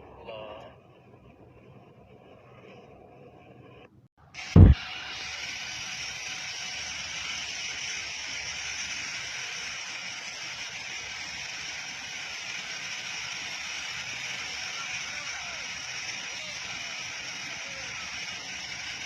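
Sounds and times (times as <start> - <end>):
loud thump: 4.6 - 4.8.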